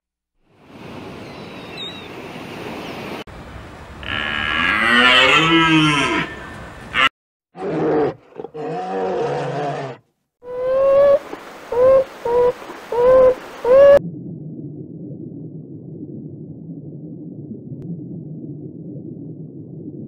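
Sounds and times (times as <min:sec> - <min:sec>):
low lowing animal calls: 0:04.0 - 0:14.0.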